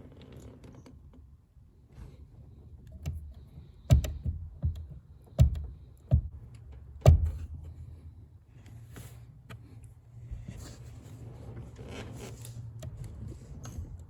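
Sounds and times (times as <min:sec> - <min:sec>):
clutch pedal knocks: 0:03.0 - 0:07.6.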